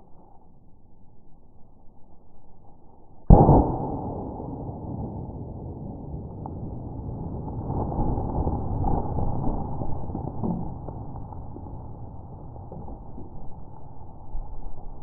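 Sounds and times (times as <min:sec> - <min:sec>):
pistol shot: 0:03.3 - 0:06.2.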